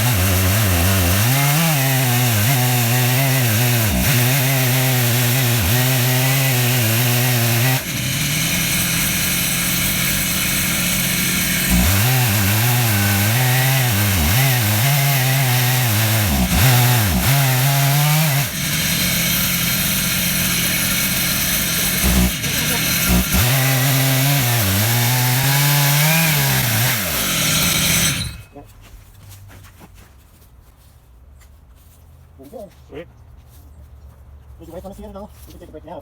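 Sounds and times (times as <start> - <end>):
chainsaw cutting through log: 0.0 - 28.5.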